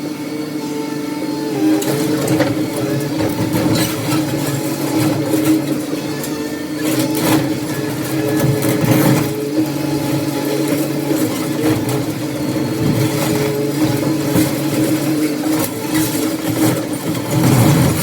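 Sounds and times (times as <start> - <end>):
heavy machine engine running: 0.0 - 18.0
debris knocking and clattering: 1.8 - 6.0, 6.8 - 18.0.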